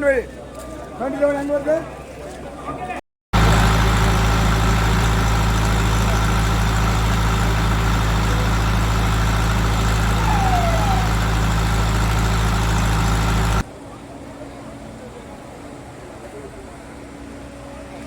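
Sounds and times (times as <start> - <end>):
broad rushing noise: 3.4 - 13.6
loud engine drone: 3.4 - 13.7.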